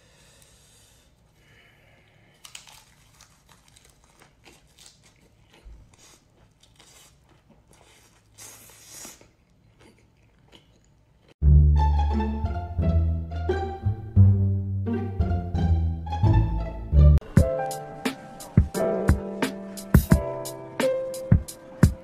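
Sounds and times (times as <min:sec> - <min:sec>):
person chewing crunchy food: 0:02.1 - 0:11.4.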